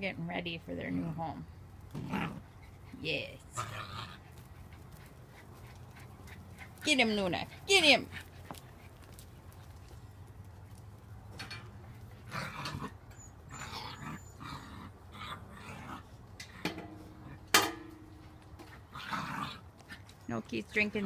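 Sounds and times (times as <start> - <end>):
puppy noises: 2.0 - 9.9, 11.9 - 17.5
puppies scuffling: 4.2 - 12.2.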